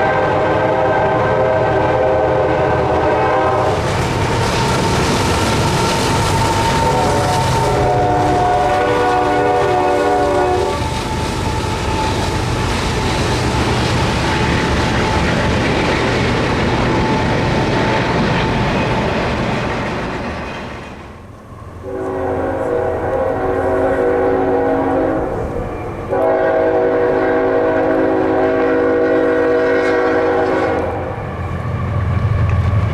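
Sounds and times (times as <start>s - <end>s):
locomotive air horn chord: 0.0s - 3.8s, 5.5s - 12.6s, 21.4s - 31.2s
train passing close by: 0.0s - 32.9s.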